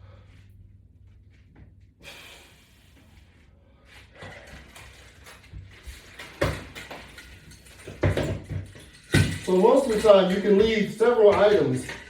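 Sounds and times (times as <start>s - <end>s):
metal hardware rattling and clicking: 4.2s - 12.0s.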